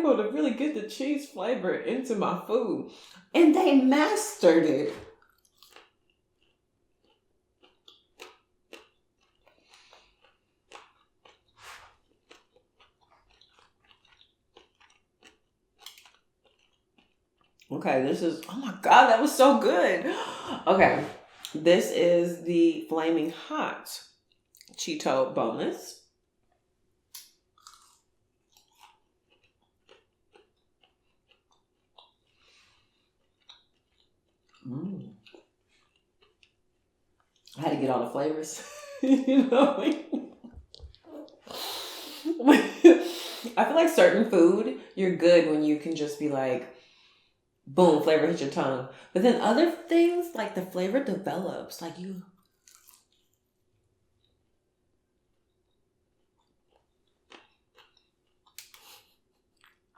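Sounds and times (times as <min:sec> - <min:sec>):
crunching and chewing food: 0:05.1 - 0:17.7, 0:24.0 - 0:24.8, 0:26.0 - 0:37.6, 0:52.2 - 0:59.9.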